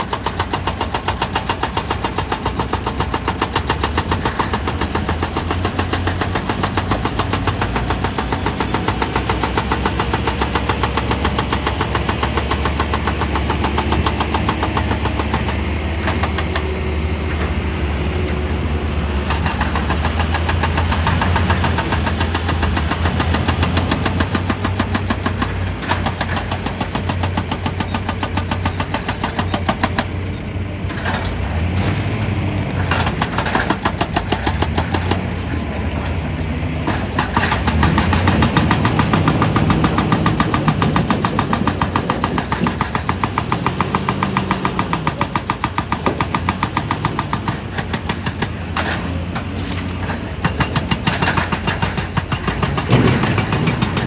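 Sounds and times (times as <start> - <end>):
rapid regular knocking: 0.0 - 30.1, 36.9 - 49.2
excavator engine hum: 0.0 - 54.0.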